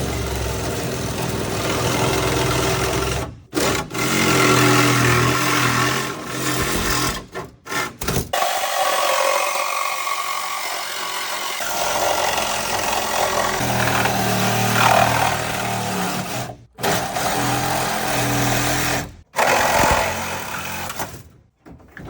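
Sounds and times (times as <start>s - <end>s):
power tool rasping on metal: 11.6s - 21.2s.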